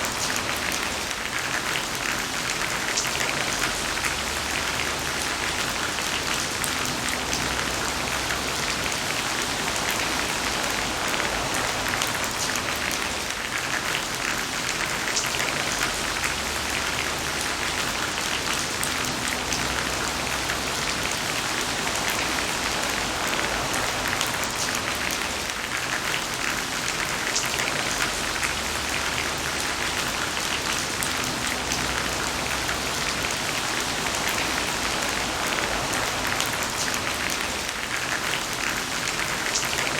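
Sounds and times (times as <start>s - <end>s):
heavy rain patter: 0.0s - 39.9s.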